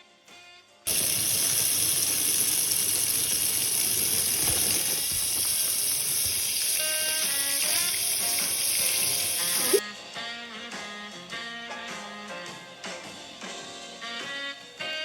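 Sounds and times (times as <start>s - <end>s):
water running from a tap: 0.9s - 9.8s.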